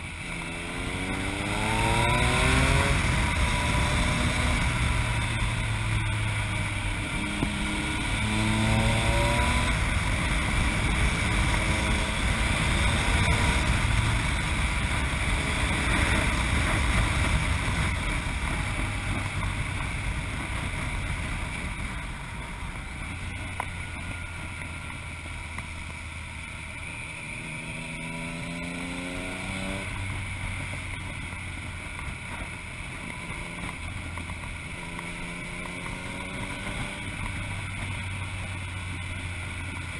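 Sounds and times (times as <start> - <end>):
wind rushing over microphone: 0.0 - 25.3
motorcycle engine revving: 0.0 - 39.9.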